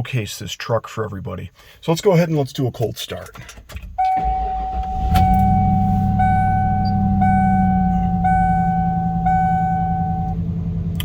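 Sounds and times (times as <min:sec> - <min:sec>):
dashboard warning chime: 0:04.0 - 0:10.4.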